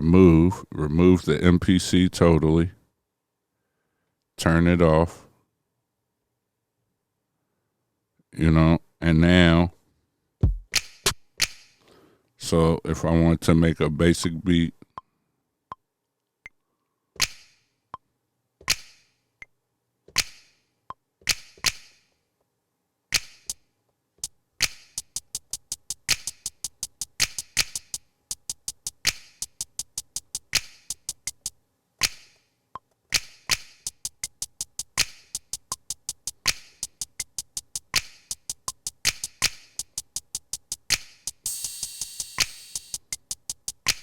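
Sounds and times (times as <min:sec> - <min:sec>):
drum machine hits: 0:10.4 - 0:11.6, 0:24.6 - 0:32.2, 0:33.2 - 0:44.0
quick hi-hat ticks: 0:23.2 - 0:23.6, 0:24.2 - 0:32.2, 0:33.1 - 0:44.0.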